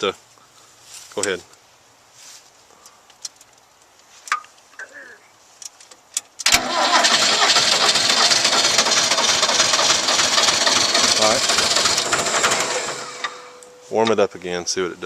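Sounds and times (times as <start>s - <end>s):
tractor diesel engine starting and running: 6.4s - 13.6s.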